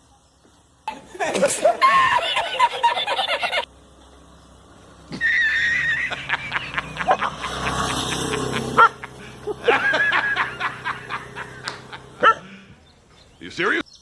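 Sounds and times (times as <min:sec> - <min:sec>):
dog yelping: 0:08.8 - 0:09.1, 0:12.2 - 0:12.5.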